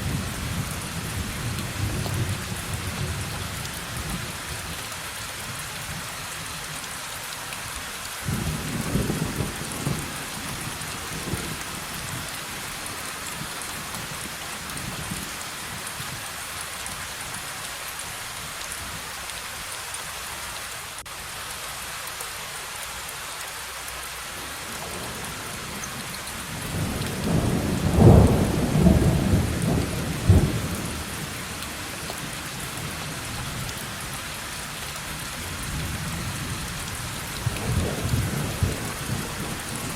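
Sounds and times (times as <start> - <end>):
heavy rain: 0.0 - 39.9
thunder rumbling: 26.7 - 33.2.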